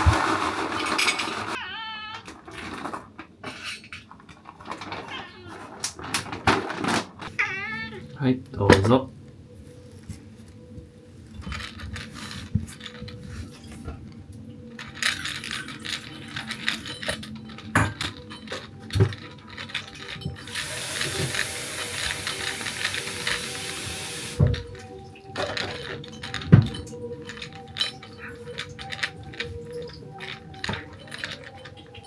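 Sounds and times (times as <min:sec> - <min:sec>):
steady hiss: 0:20.4 - 0:25.0.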